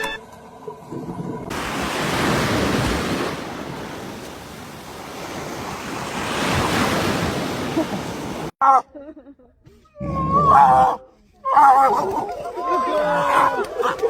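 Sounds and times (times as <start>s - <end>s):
ocean waves washing in: 0.2s - 8.5s.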